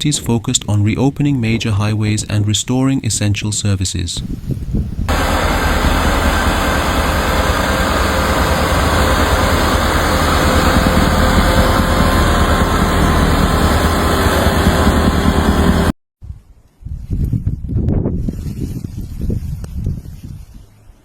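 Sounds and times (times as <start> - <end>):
vehicle engine running: 5.1 - 15.9.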